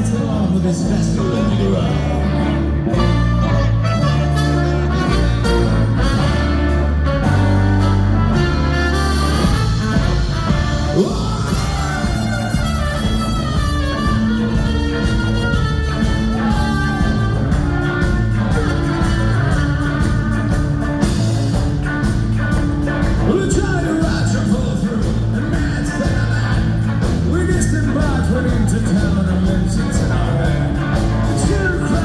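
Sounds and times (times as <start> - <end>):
ska punk band playing live: 0.0 - 32.0
steady drum beat: 0.0 - 32.0
person singing and shouting: 10.5 - 15.3, 15.9 - 18.5.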